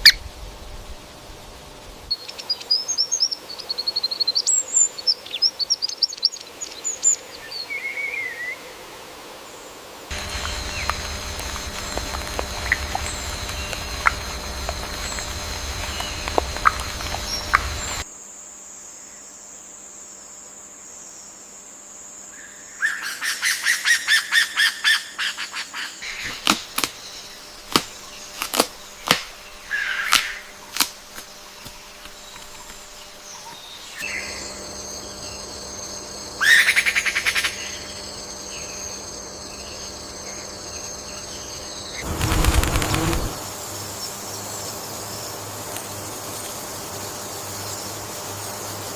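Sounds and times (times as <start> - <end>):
high insect drone: 8.8 - 20.8, 26.0 - 48.9
forest ambience: 9.5 - 18.3, 22.3 - 48.9
wild birds calling: 10.1 - 18.0, 41.0 - 43.4.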